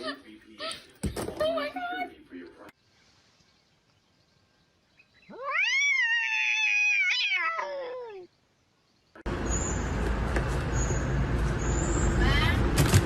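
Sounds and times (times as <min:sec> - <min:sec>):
cat meowing: 0:05.3 - 0:08.3.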